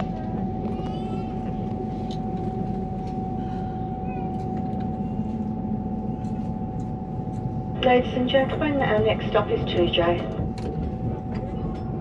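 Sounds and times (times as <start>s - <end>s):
railcar cabin rumble: 0.0s - 12.0s.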